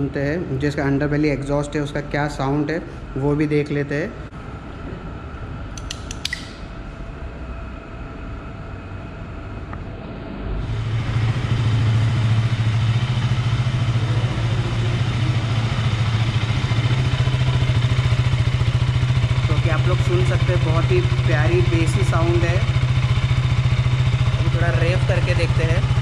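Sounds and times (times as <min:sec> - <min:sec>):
clicks: 0:05.8 - 0:06.6
motorcycle engine idling: 0:10.7 - 0:26.0.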